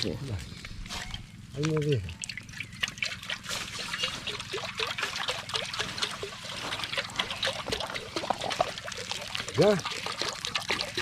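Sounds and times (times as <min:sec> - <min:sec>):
water pouring into a pot: 0:01.8 - 0:11.0.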